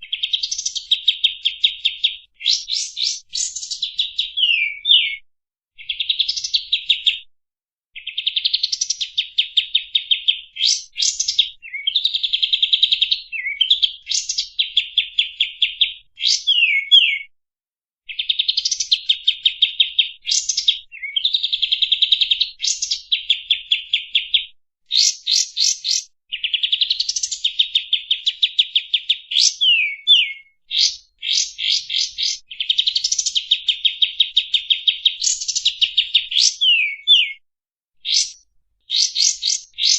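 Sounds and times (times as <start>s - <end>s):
songbird trilling and whistling: 0.0s - 5.2s, 5.8s - 7.2s, 8.0s - 17.3s, 18.1s - 37.4s, 38.0s - 39.9s.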